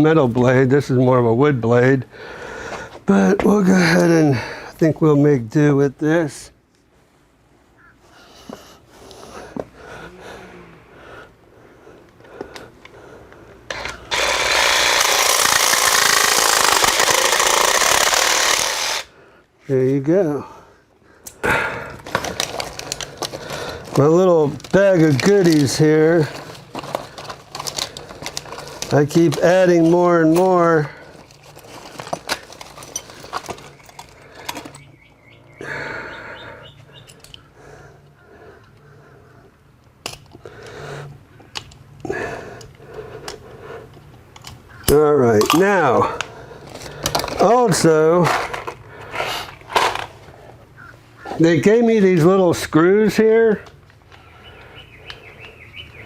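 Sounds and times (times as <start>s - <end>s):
faint steady hum: 0.0s - 56.0s
jigsaw cutting metal: 13.7s - 19.1s
bag of screws rustling: 22.0s - 34.9s, 46.6s - 50.2s.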